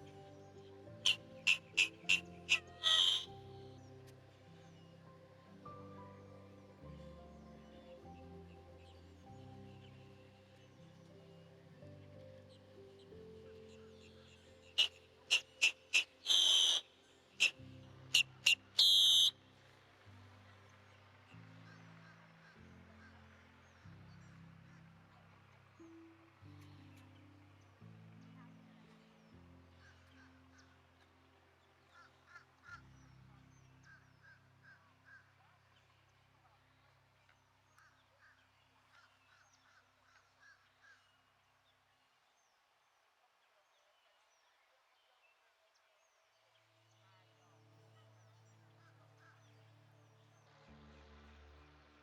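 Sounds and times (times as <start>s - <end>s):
soft background music: 0.0s - 52.0s
bird calling: 1.0s - 3.4s, 14.6s - 19.3s.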